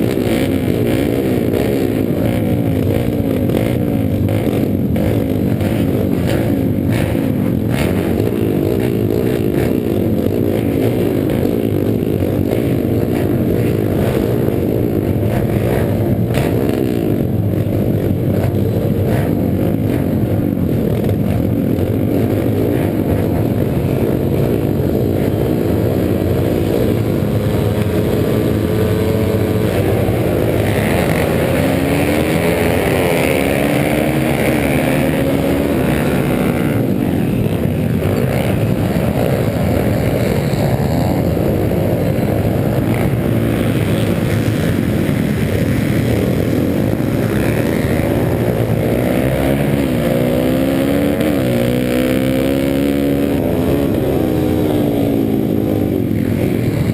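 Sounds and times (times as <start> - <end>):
motorbike engines revving: 0.0 - 56.9.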